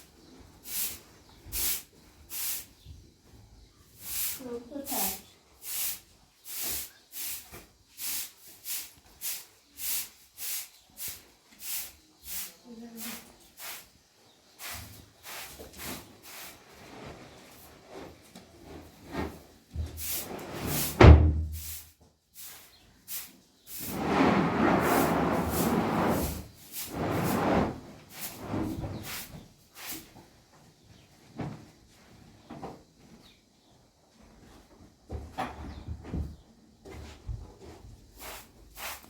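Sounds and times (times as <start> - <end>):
scraping noise: 23.8 - 29.0.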